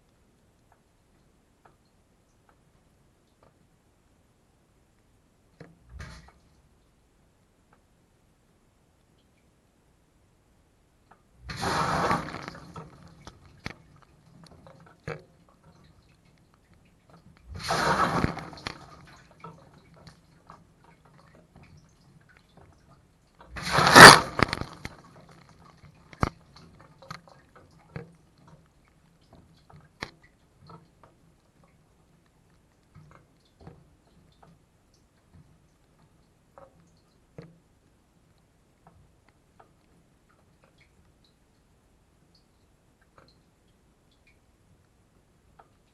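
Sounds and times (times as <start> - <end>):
water drips and clicks: 0.0 - 3.8, 4.9 - 8.0, 9.0 - 9.6, 10.9 - 45.9
faint low pump hum: 0.0 - 45.9.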